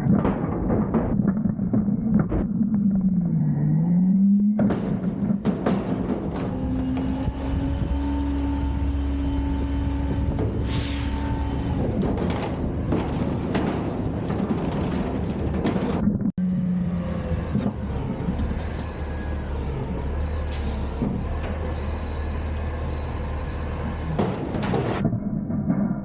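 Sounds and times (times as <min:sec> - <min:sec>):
metal clanks and rattles: 0:00.0 - 0:02.8, 0:04.5 - 0:08.0, 0:09.9 - 0:16.3, 0:20.2 - 0:26.0
garbage truck engine drone: 0:00.0 - 0:26.0.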